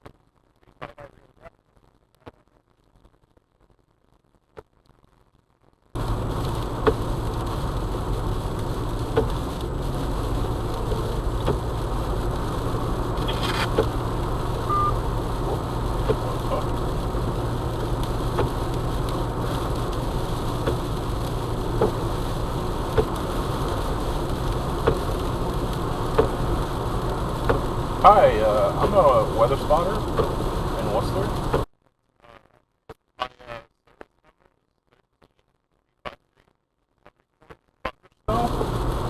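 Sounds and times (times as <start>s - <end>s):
low hum: 6.0s - 31.6s
car road and engine noise: 6.0s - 31.7s, 38.3s - 39.0s.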